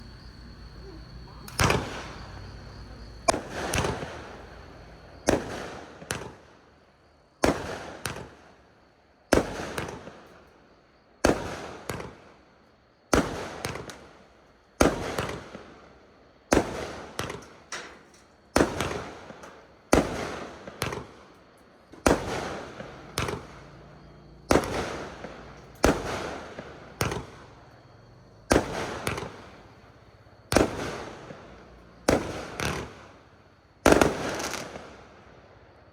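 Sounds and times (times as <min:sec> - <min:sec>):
fireworks bangs: 0:00.0 - 0:06.5, 0:18.6 - 0:21.3, 0:21.9 - 0:27.8, 0:28.5 - 0:35.3
small firework pops: 0:01.3 - 0:06.6, 0:07.4 - 0:08.6, 0:09.3 - 0:10.4, 0:11.2 - 0:12.3, 0:13.1 - 0:14.2, 0:14.8 - 0:15.7, 0:16.5 - 0:23.8, 0:24.5 - 0:27.8, 0:28.5 - 0:35.4.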